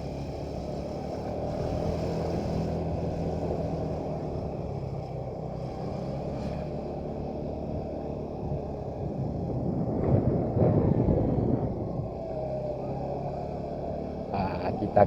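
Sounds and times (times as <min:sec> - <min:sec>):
motorcycle engine running: 0:00.0 - 0:15.0
wind noise on microphone: 0:08.9 - 0:12.2.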